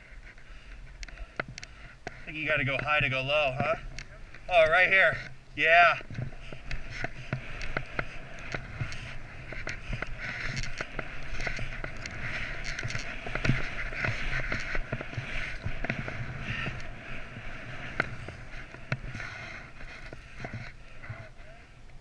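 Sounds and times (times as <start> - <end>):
small clicks and knocks: 6.0 - 16.9.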